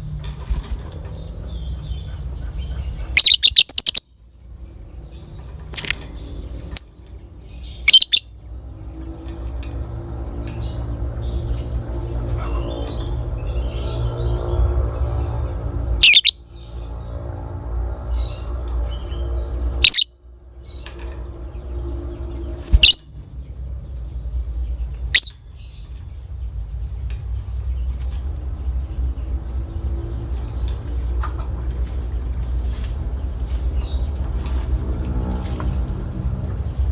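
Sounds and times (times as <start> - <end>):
high insect-like whine: 0.0 - 36.9
shrill bird calls: 1.2 - 4.2, 7.5 - 8.4, 16.0 - 16.9, 18.2 - 20.9, 22.1 - 23.2, 25.1 - 25.9.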